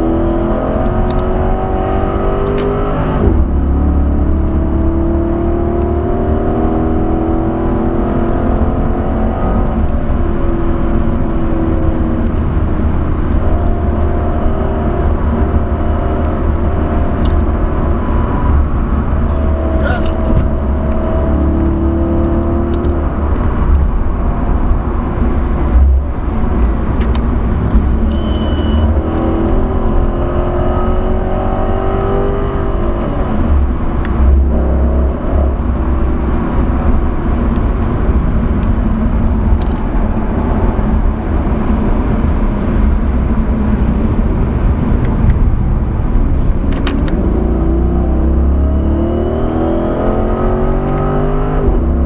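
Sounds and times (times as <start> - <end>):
car engine running hard: 0.0 - 52.0
heavy low rumble: 3.0 - 5.2, 8.3 - 31.8, 32.6 - 48.8.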